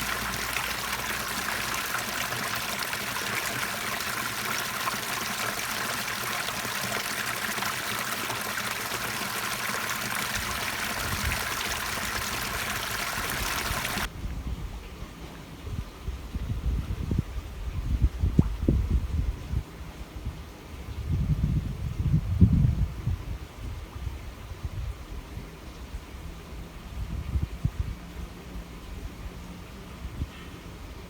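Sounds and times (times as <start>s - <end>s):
stream trickling: 0.0s - 14.1s.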